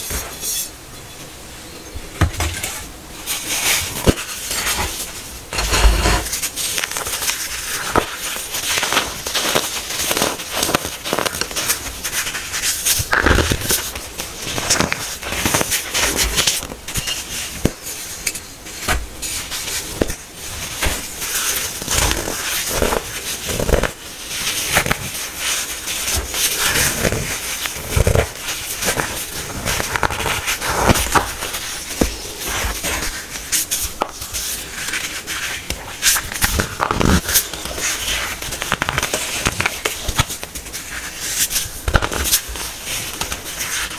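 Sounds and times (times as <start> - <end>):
hardened powder crunching: 5.5 - 16.5.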